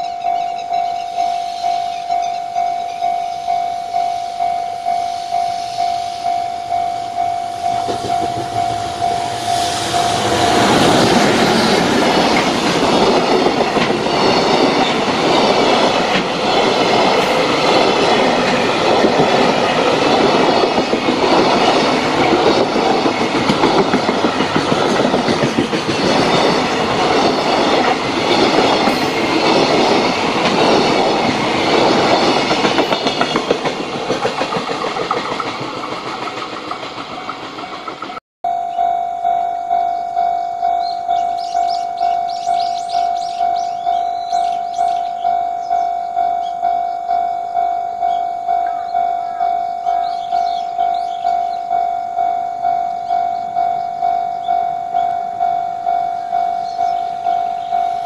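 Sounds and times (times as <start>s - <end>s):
level crossing bell ringing: 0.0s - 12.3s, 38.4s - 58.0s
train wheels clattering: 6.8s - 38.2s.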